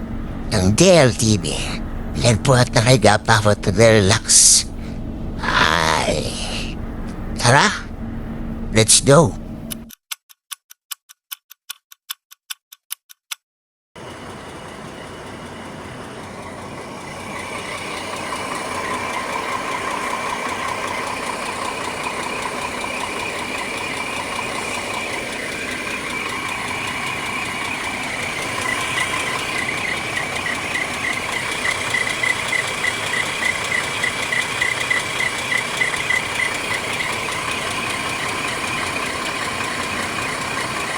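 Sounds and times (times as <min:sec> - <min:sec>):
bus engine idling: 0:00.0 - 0:09.9, 0:14.0 - 0:40.9
evenly spaced clicks: 0:09.7 - 0:13.4, 0:17.9 - 0:40.9.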